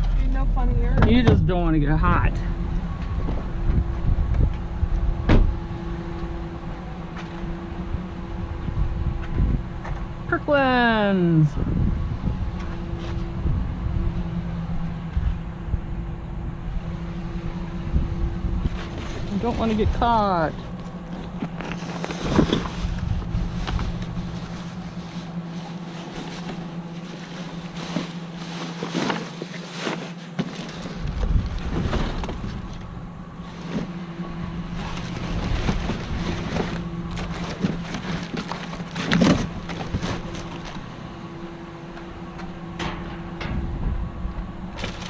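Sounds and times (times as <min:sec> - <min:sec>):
wind on microphone: 0:00.0 - 0:10.3, 0:11.5 - 0:20.3, 0:20.9 - 0:25.1, 0:31.0 - 0:33.1, 0:43.4 - 0:44.8
low machine hum: 0:00.0 - 0:45.0
rummaging through dumpster: 0:00.0 - 0:45.0.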